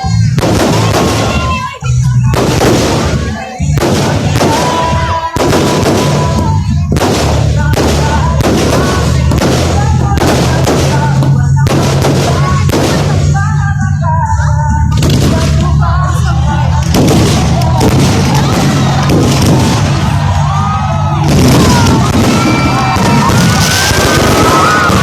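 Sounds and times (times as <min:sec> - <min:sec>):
fireworks bangs: 0:00.0 - 0:25.0
steady low rumble: 0:01.9 - 0:25.0.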